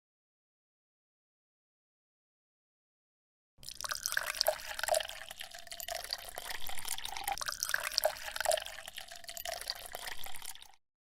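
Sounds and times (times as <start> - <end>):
water trickling and dripping: 3.6 - 10.8.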